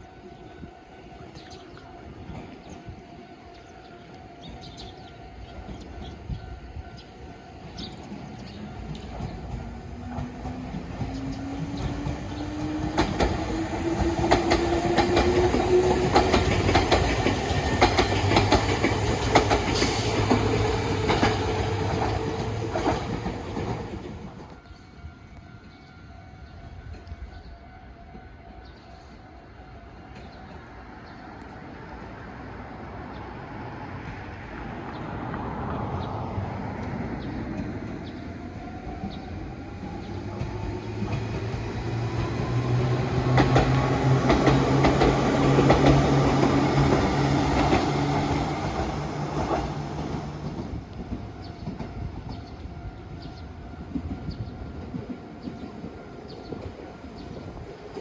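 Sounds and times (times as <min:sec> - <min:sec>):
train wheels clacking on rail joints: 0:07.7 - 0:24.5, 0:39.0 - 0:52.6.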